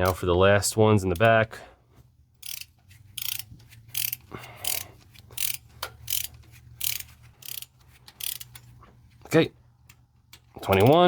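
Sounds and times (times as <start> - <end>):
torque wrench ratcheting: 2.4 - 8.8.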